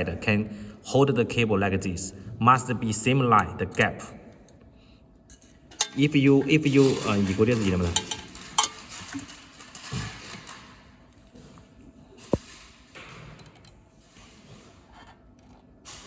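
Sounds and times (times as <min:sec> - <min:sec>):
metal parts handling noises: 0:05.3 - 0:11.5.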